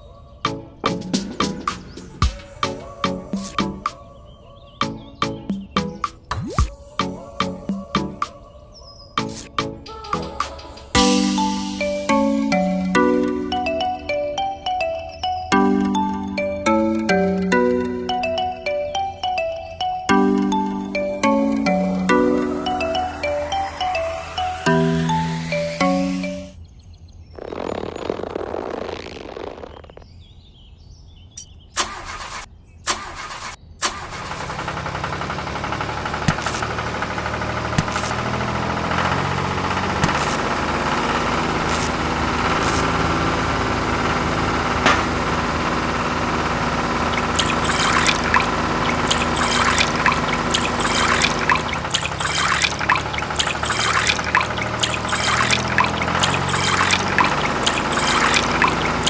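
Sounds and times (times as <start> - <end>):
small motor running: 34.4 - 59.0.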